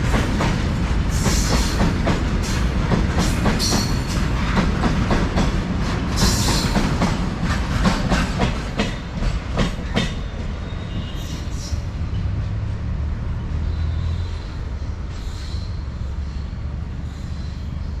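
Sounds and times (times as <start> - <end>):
train wheels clacking over rail joints: 0.0 - 12.5
train rumbling: 0.0 - 18.0
faint wheel squeal: 13.6 - 17.9.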